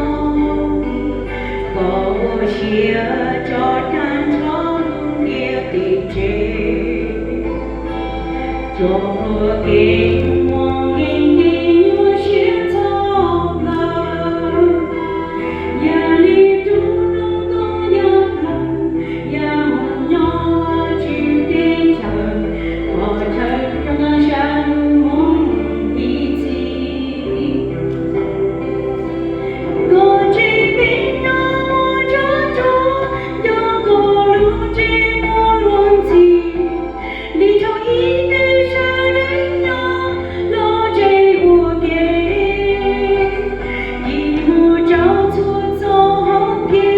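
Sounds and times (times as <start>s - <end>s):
group singing a hymn: 0.0s - 34.6s
low instrumental accompaniment: 0.0s - 46.9s.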